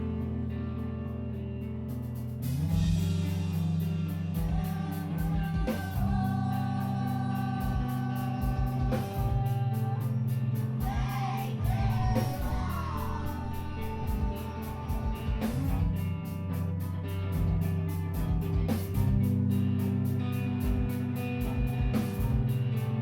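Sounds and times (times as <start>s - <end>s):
electric guitar chords: 0.0s - 23.0s
drums with cymbal strokes: 2.0s - 23.0s
person singing: 3.2s - 16.6s.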